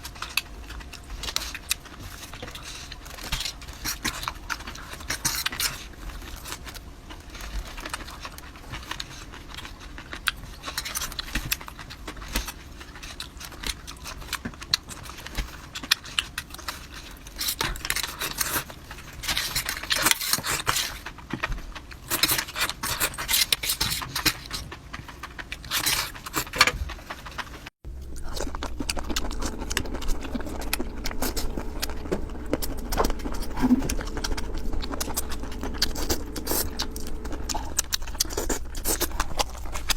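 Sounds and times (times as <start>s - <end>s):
wet chewing and crunching: 0.0s - 39.9s
sharp clicks and crackles: 19.3s - 39.9s.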